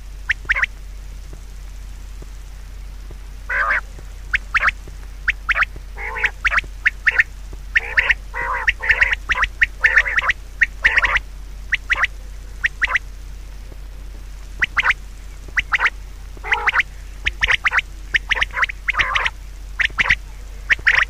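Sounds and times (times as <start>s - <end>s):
birds giving harsh calls: 0.3s - 0.8s, 3.5s - 13.1s, 14.6s - 21.0s.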